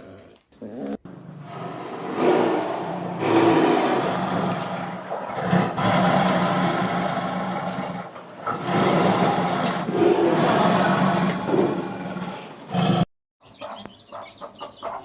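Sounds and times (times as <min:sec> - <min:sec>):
large animal roaring: 0:00.0 - 0:13.1.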